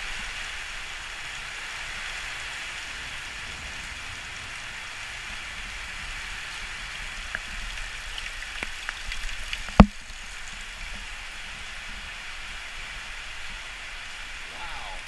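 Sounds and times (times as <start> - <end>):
heavy rain falling: 0.0 - 15.0
sharp taps: 9.8 - 10.0.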